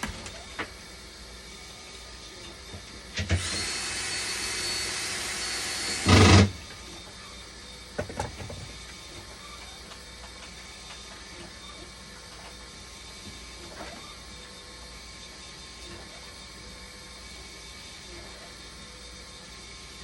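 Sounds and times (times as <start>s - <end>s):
power tool whining: 3.1s - 7.2s.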